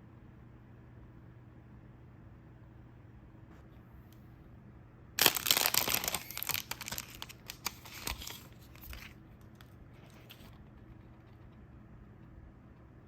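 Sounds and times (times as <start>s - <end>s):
snack packaging ripping and crinkling: 5.2s - 9.2s.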